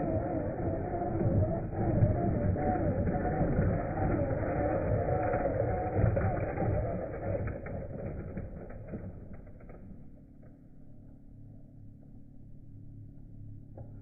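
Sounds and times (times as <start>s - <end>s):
toy truck driving on dirt: 0.0s - 10.6s
faint low hum: 0.0s - 14.0s.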